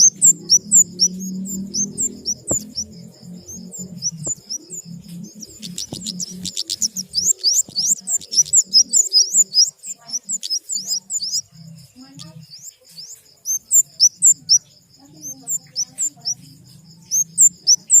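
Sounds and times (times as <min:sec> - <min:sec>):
small birds chirping high: 0:00.0 - 0:18.0.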